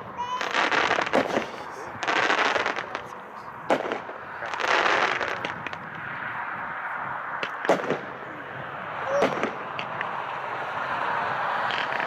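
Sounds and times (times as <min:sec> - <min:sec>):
firework bangs: 0:00.1 - 0:12.0
firework hissing: 0:00.3 - 0:06.1.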